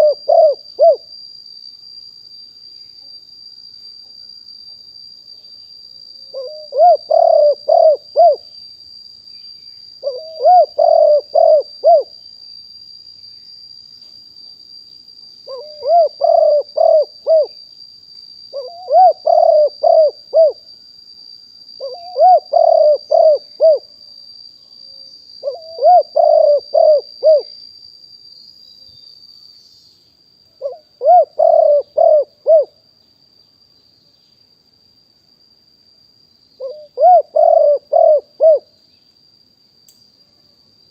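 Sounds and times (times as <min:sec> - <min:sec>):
dove cooing: 0:00.0 - 0:01.0, 0:06.4 - 0:08.4, 0:10.0 - 0:12.1, 0:15.5 - 0:17.6, 0:18.5 - 0:20.6, 0:21.8 - 0:23.8, 0:25.4 - 0:27.5, 0:30.6 - 0:32.7, 0:36.6 - 0:38.7.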